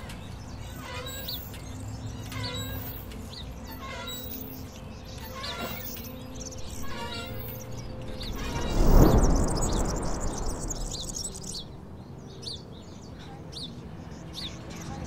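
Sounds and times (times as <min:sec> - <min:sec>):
small birds chirping: 0:00.0 - 0:15.0
loud whoosh: 0:07.7 - 0:11.8.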